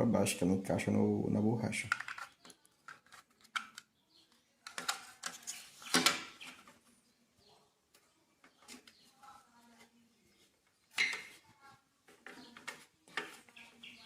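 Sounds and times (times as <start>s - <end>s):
small plastic clicks and knocks: 1.8s - 6.3s.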